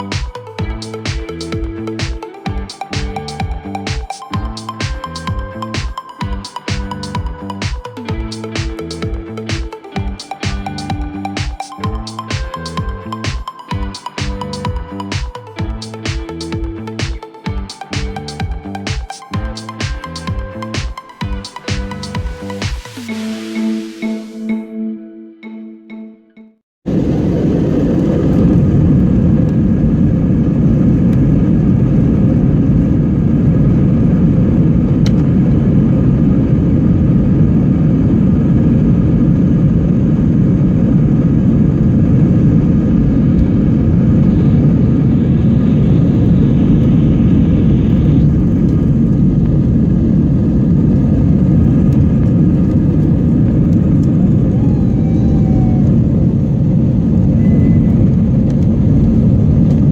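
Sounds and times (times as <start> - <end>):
jet engine cabin noise: 26.9 - 59.9.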